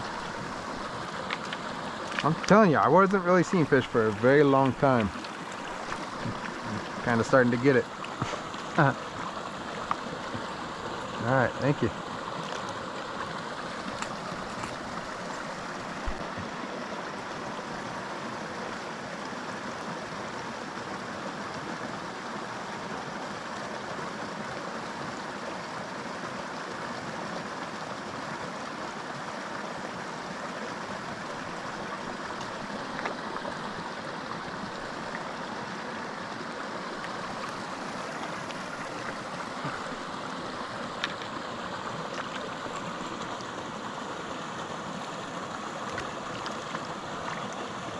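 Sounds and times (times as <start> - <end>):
creek flowing over rocks: 0.0 - 47.9.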